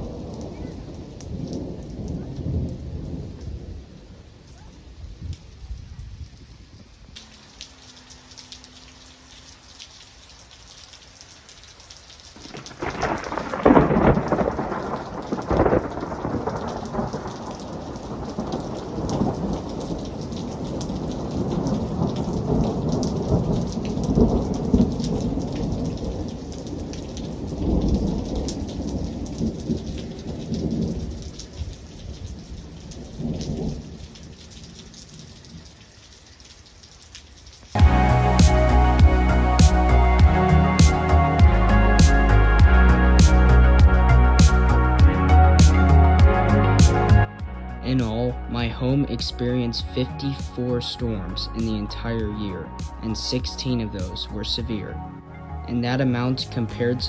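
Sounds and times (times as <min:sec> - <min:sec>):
rolling thunder: 0:00.0 - 0:04.4, 0:12.4 - 0:34.7
steady rain falling: 0:00.0 - 0:57.0.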